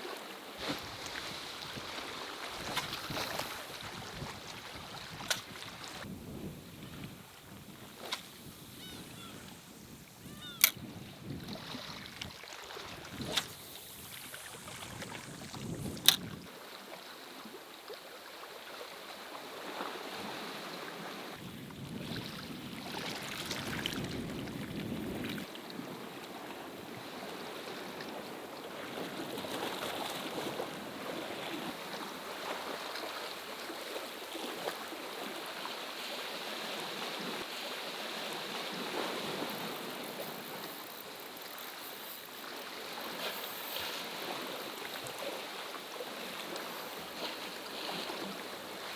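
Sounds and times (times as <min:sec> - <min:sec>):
moving water: 0:00.0 - 0:48.9
wind noise on microphone: 0:00.6 - 0:16.5, 0:21.3 - 0:26.0
sharp click: 0:13.3 - 0:16.4.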